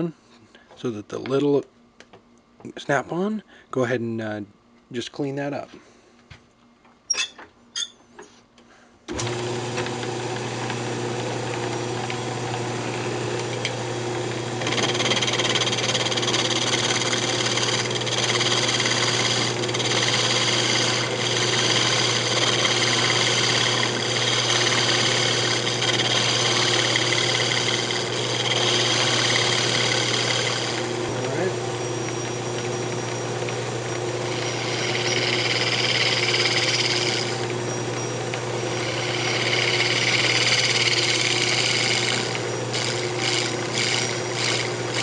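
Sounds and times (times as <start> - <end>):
lathe motor humming: 9.1 - 45.0
turning tool cutting wood: 9.1 - 45.0.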